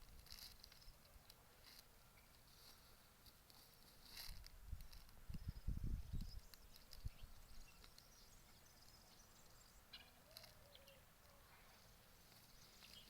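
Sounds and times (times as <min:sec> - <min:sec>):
chickens calling: 0:09.8 - 0:13.0.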